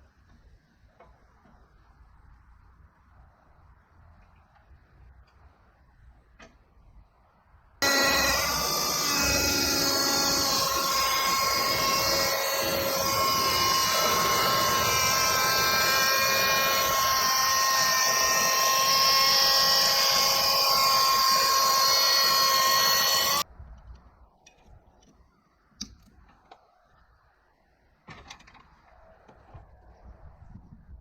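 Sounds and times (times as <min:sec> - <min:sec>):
saw chain cutting through log: 0:07.8 - 0:23.4.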